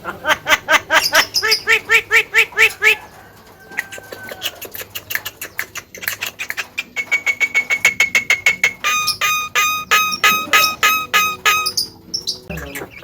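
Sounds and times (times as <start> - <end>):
bird calling repeated notes: 0.5 - 3.0, 5.5 - 13.0
bird clicks: 4.1 - 11.7.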